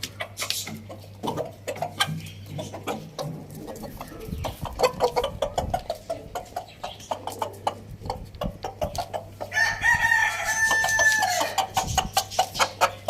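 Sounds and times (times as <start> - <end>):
chickens pecking taps: 0.0 - 9.6
chickens clucking: 0.0 - 13.0.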